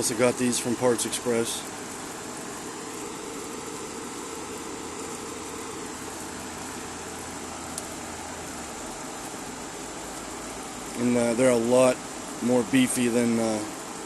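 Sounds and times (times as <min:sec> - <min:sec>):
air conditioner humming: 0:00.0 - 0:14.0
faint tick: 0:07.7 - 0:07.9.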